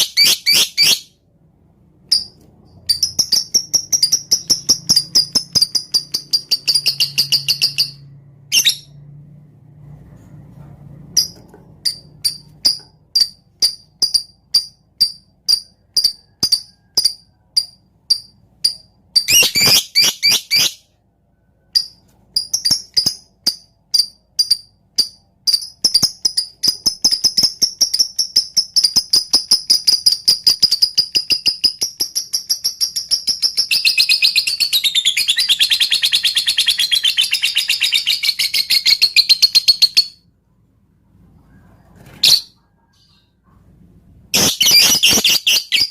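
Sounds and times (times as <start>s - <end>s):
lovebird chirping and trilling: 0.0s - 1.2s, 2.1s - 9.1s, 11.2s - 20.9s, 21.7s - 40.3s, 41.4s - 43.4s, 44.3s - 45.9s.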